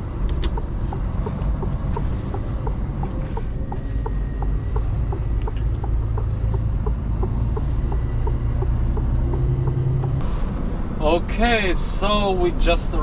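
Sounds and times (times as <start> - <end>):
even ticking: 0.0 - 10.2
truck engine running: 0.0 - 13.0.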